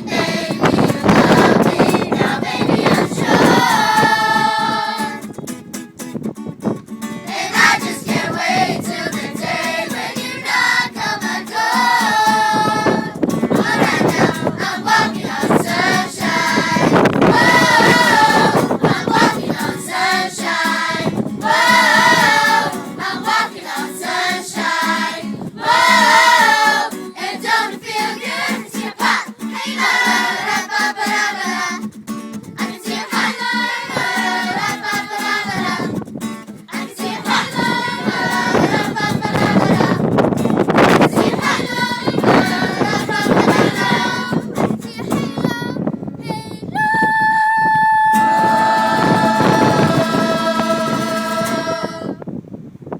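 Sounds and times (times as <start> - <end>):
children's choir singing: 0.0 - 5.4, 7.2 - 31.9, 32.5 - 36.0, 36.6 - 45.7, 47.9 - 52.2.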